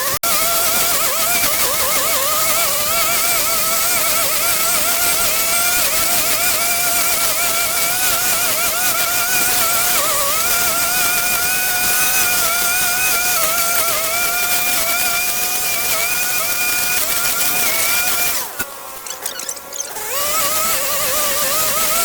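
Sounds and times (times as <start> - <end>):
small petrol engine whining: 0.0 - 22.0.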